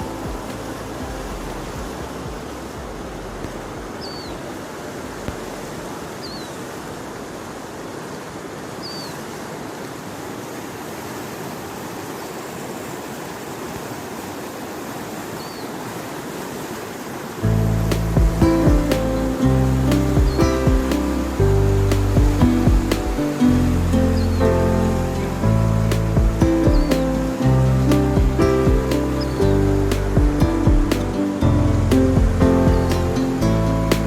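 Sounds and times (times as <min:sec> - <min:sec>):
music: 0:00.0 - 0:03.9, 0:17.4 - 0:34.0
flowing water rushing: 0:00.0 - 0:34.0
bird chirping: 0:23.9 - 0:24.6.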